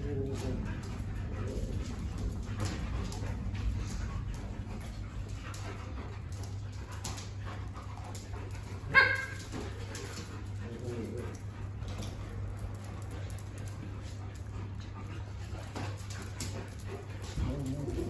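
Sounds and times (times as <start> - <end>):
steady low hum: 0.0 - 18.0
dog barking: 8.9 - 9.4.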